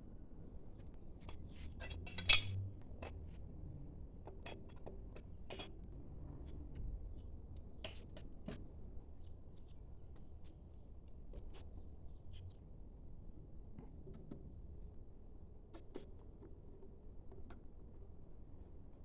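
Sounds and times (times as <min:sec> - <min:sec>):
metal tools clinking: 0:01.8 - 0:02.6.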